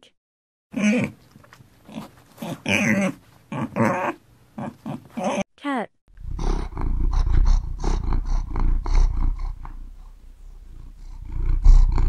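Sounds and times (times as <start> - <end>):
cat purring: 6.2 - 12.0.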